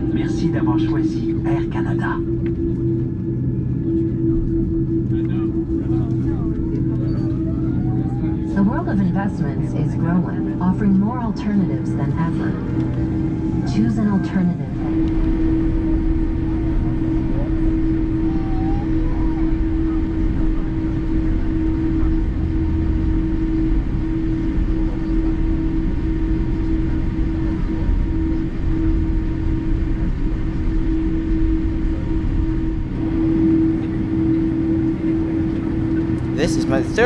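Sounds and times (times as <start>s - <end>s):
aircraft cabin engine drone: 0.0s - 19.3s, 35.0s - 37.0s.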